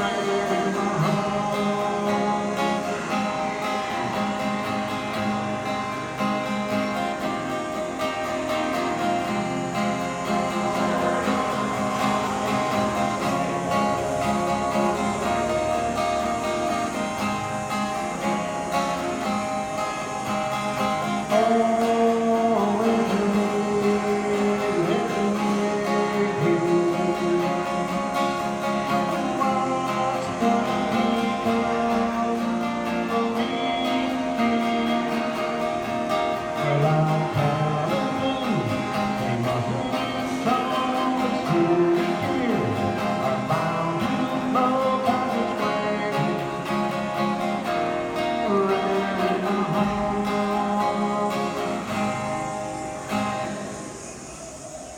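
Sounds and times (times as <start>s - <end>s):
person singing: 0.0s - 53.5s
strummed acoustic guitar: 0.0s - 54.9s.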